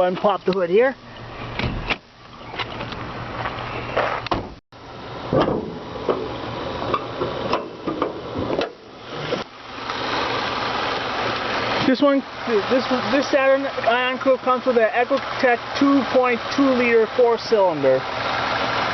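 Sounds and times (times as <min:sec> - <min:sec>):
car hood latch clicking and clunking: 0:01.5 - 0:03.0, 0:04.2 - 0:04.6, 0:05.3 - 0:06.3, 0:06.9 - 0:08.9.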